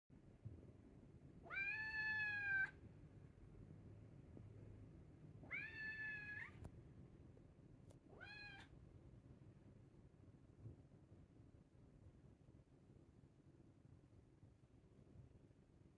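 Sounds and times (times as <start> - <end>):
cat meowing: 1.4 - 2.8, 5.4 - 6.6, 8.1 - 8.7.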